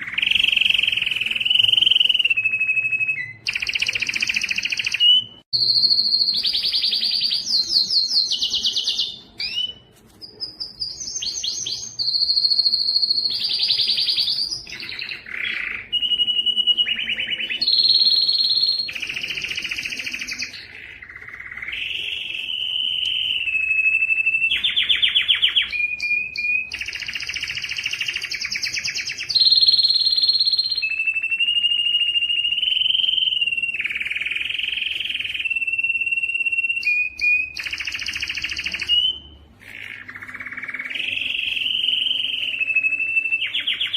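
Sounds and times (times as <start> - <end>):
canary singing trills: 0.0 - 43.9.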